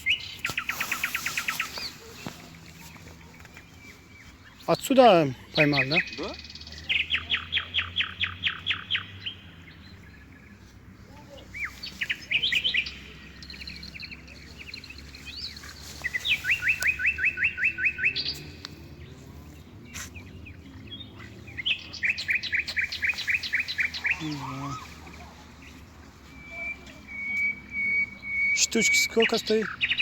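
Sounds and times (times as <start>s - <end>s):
songbird trilling: 11.6s - 18.7s, 19.9s - 30.0s.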